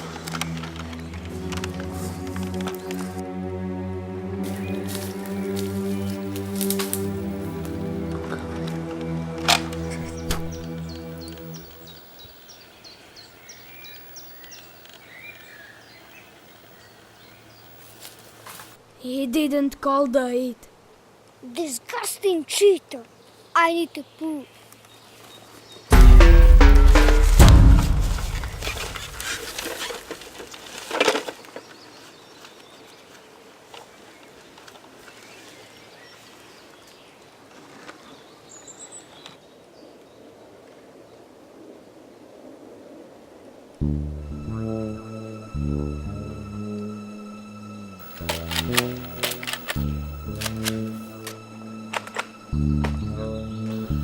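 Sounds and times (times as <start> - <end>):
twigs clicking: 0.0 - 3.3, 4.4 - 11.9, 28.2 - 32.6, 48.0 - 53.0
bird chirping: 4.5 - 7.4, 8.1 - 18.0, 48.0 - 54.0
loud rustle or crunch: 4.5 - 7.7, 27.4 - 36.5
bird chirp: 9.7 - 18.0.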